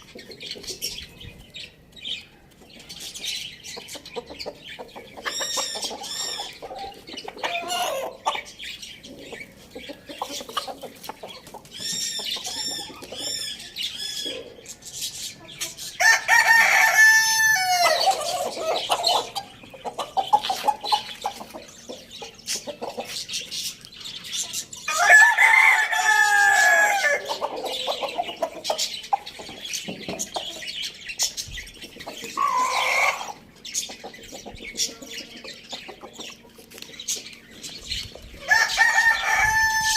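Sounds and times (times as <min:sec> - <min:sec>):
chickens clucking: 0:00.0 - 0:39.9
roosters crowing: 0:05.2 - 0:08.6, 0:15.8 - 0:21.4, 0:24.8 - 0:28.6, 0:32.3 - 0:33.5, 0:38.3 - 0:39.9.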